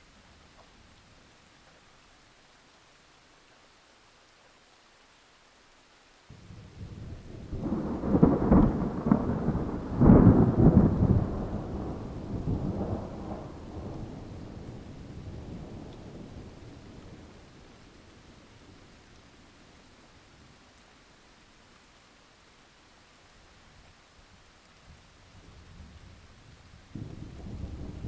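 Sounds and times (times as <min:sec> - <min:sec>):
faint hiss: 0:00.0 - 0:28.0
rain: 0:00.0 - 0:28.0
rolling thunder: 0:06.4 - 0:17.5, 0:26.9 - 0:28.0.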